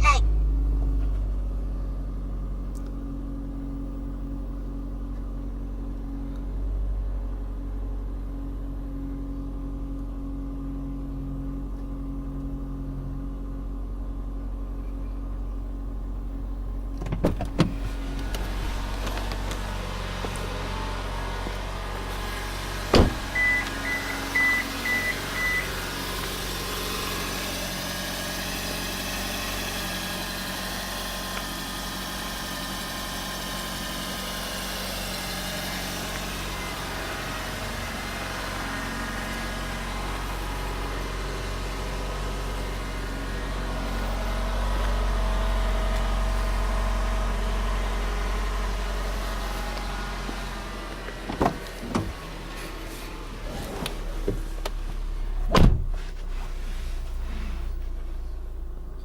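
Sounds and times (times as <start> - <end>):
car engine idling: 0.0 - 59.0
high beeps: 23.4 - 25.7.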